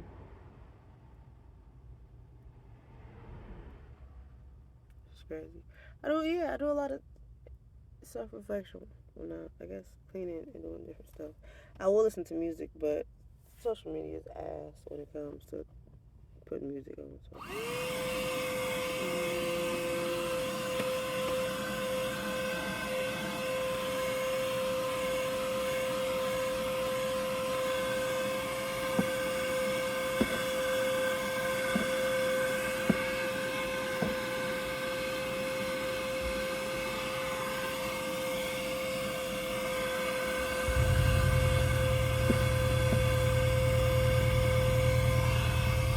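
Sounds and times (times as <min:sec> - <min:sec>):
vacuum cleaner motor whining: 0:17.4 - 0:45.9.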